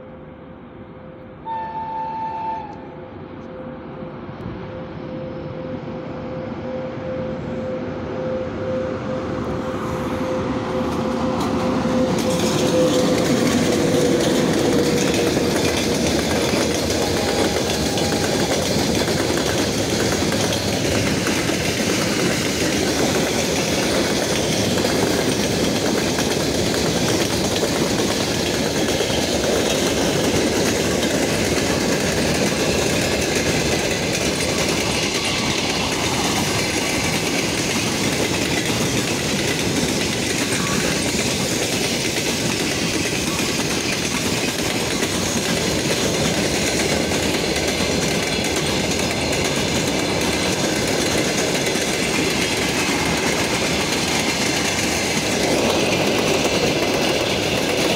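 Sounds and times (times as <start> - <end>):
electric locomotive passing: 0.0 - 57.9
locomotive horn blast: 1.4 - 3.7
wheels clacking over rail joints: 11.0 - 57.9
freight wagons rumbling: 11.7 - 57.9.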